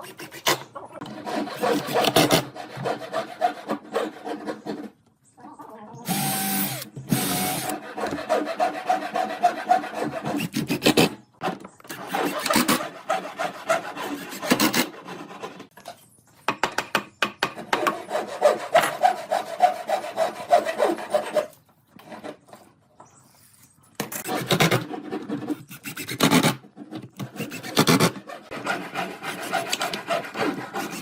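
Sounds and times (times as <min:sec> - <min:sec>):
rasp on wood: 0:00.0 - 0:04.9, 0:06.1 - 0:11.1, 0:11.9 - 0:15.7, 0:17.7 - 0:22.2, 0:27.2 - 0:31.0.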